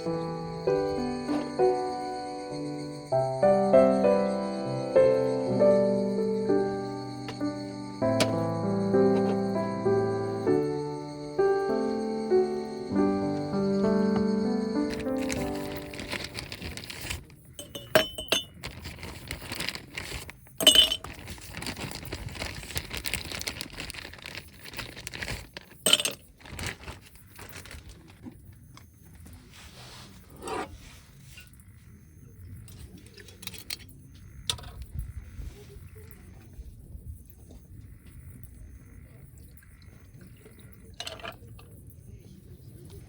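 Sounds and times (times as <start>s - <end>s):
hard objects clinking: 14.9s - 21.8s, 24.6s - 27.5s.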